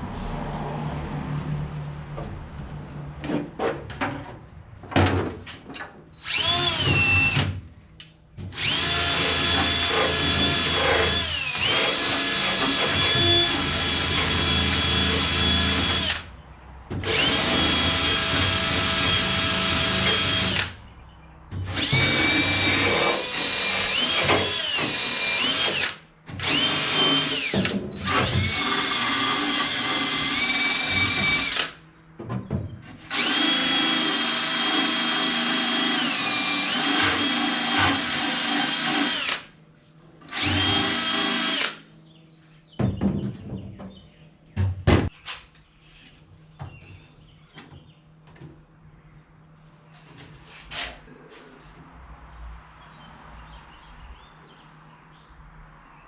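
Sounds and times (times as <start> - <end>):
power tool whining: 6.2 - 7.5, 8.5 - 16.3, 17.0 - 20.8, 21.6 - 31.8, 33.1 - 39.5, 40.3 - 41.8.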